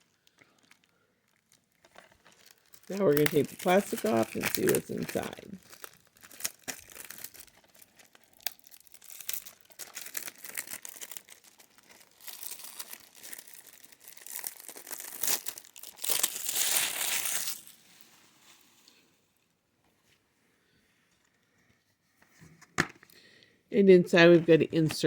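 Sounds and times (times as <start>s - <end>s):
plastic wrap crinkling and tearing: 0.0s - 18.9s.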